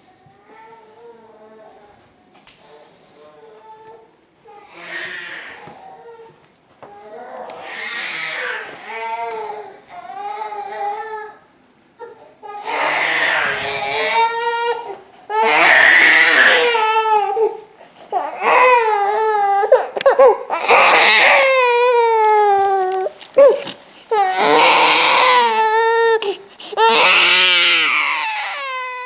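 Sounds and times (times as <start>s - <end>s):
infant crying: 7.0s - 11.4s, 12.0s - 29.0s
infant yelps: 12.6s - 17.5s, 18.1s - 29.0s
gasping breaths: 17.6s - 18.4s, 22.3s - 28.8s.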